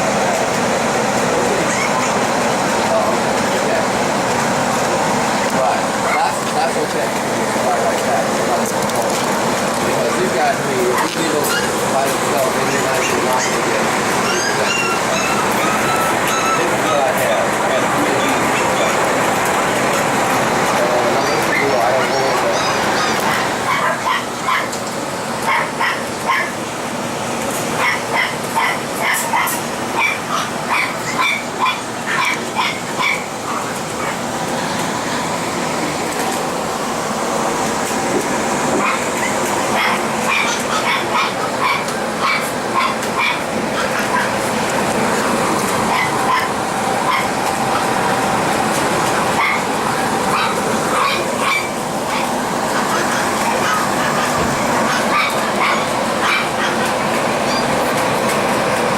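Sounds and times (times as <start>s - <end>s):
loud steady background noise: 0.0s - 58.9s
puppies yipping: 1.6s - 2.3s, 10.9s - 11.8s, 12.7s - 19.1s, 21.0s - 24.8s, 25.4s - 26.6s, 27.8s - 34.2s, 38.8s - 44.4s, 45.6s - 48.0s, 49.2s - 57.8s.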